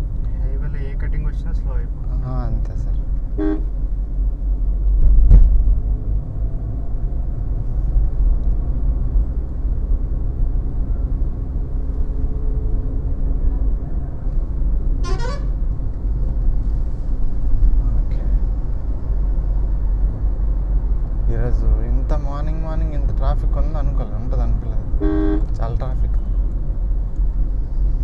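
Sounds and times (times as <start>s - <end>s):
road and engine rumble inside car: 0.0s - 28.0s
vehicle horn toot: 3.4s - 3.7s, 15.0s - 15.6s, 25.0s - 25.5s
thump: 5.0s - 5.6s.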